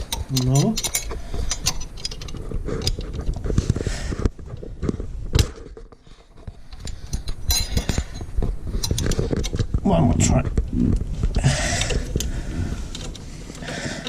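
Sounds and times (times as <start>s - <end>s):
spring tool clicking and scraping metal: 0.0s - 3.4s, 6.5s - 9.7s.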